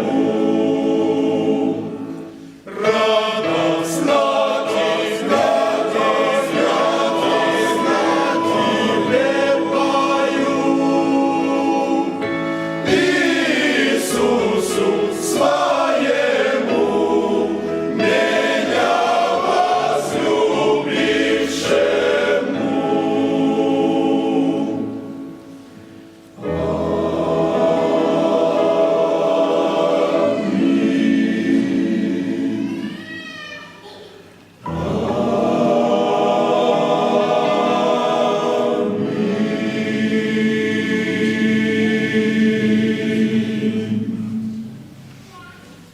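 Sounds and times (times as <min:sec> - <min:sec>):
choir singing a hymn: 0:00.0 - 0:33.0, 0:34.6 - 0:45.1
musical accompaniment: 0:00.0 - 0:33.0, 0:34.3 - 0:45.9.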